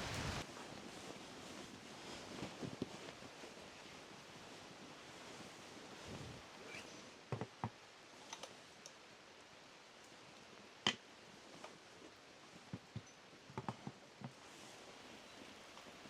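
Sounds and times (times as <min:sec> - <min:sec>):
faint steady hiss: 0:00.0 - 0:16.0
light clicks and knocks: 0:12.7 - 0:14.4.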